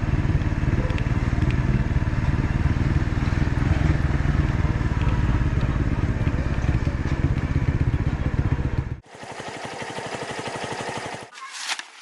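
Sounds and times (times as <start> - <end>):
motorcycle engine running: 0.0 - 11.3
rhythmic engine pulsing: 0.0 - 11.3.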